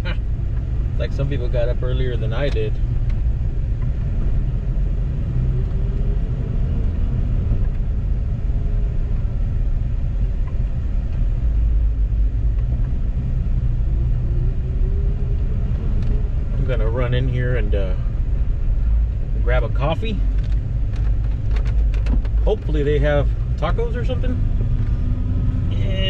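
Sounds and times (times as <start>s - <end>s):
car engine rumbling: 0.0s - 26.0s.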